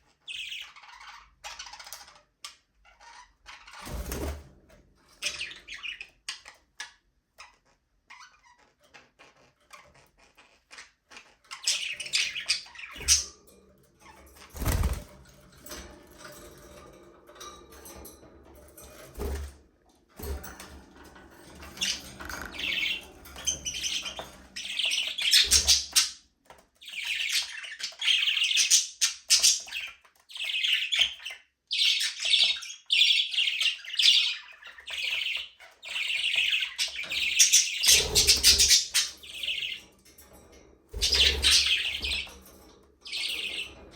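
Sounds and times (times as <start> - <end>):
budgerigars chattering and chirping: 0.0 - 3.8, 5.2 - 13.4, 21.7 - 26.2, 26.8 - 39.9, 40.9 - 43.9.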